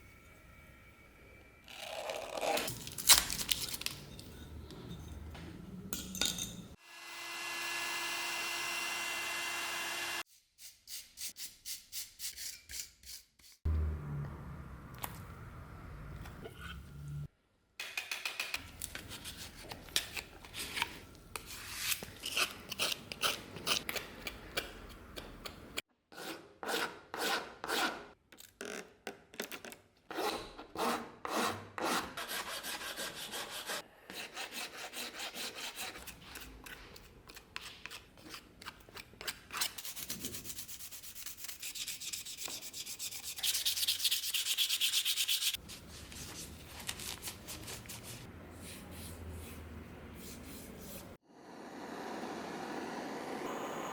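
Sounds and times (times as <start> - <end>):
hand sanding strokes: 31.8 - 36.0, 39.8 - 46.5.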